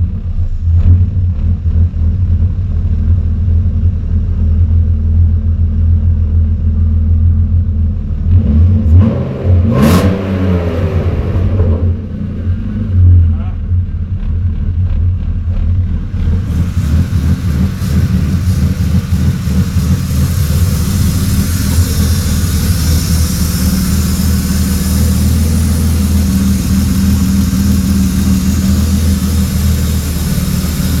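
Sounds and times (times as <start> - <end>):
car engine idling: 0.0 - 31.0
hiss: 16.2 - 31.0.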